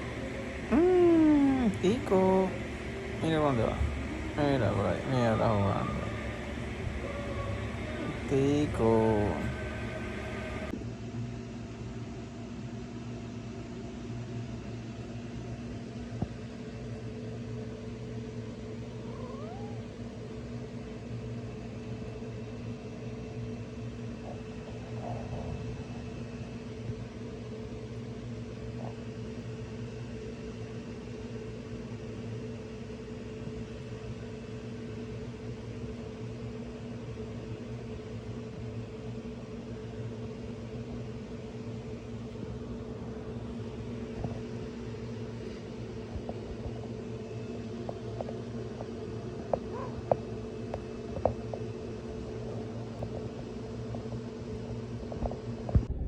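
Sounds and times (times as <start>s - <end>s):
steady machine hum: 0.0s - 56.0s
cat meowing: 19.0s - 19.9s.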